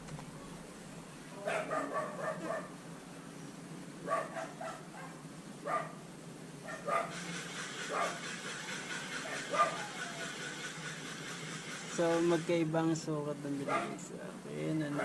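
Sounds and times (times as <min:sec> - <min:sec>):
dog barking: 0:01.4 - 0:02.8, 0:04.0 - 0:06.0, 0:06.6 - 0:07.2, 0:07.9 - 0:08.3, 0:09.2 - 0:10.3, 0:13.6 - 0:14.0.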